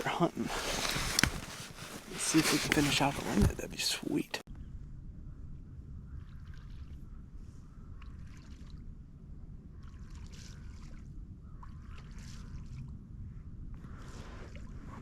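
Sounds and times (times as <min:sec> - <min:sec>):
clothing rustling: 0:00.0 - 0:04.3
low rumble of handling and wind: 0:00.0 - 0:15.0.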